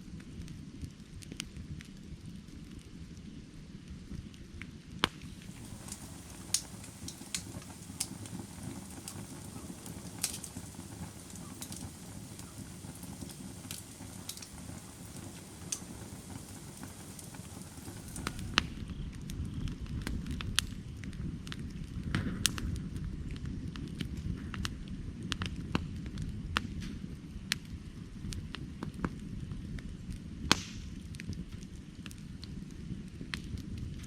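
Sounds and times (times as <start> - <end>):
firewood crackling and popping: 0.0 - 34.0
low rumble of flame: 0.0 - 34.0.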